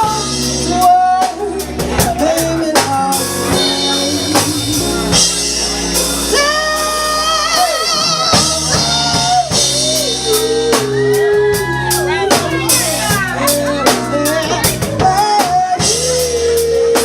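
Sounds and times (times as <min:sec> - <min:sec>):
live band playing: 0:00.0 - 0:17.0
woman singing: 0:07.5 - 0:17.0.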